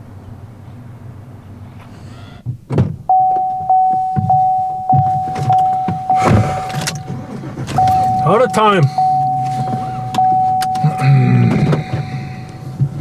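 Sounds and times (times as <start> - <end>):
car warning chime dinging: 3.1 - 13.0.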